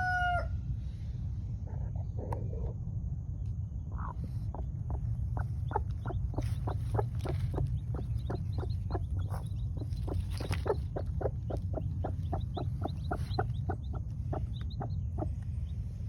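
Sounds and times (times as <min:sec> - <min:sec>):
chickens clucking: 0:04.0 - 0:16.0.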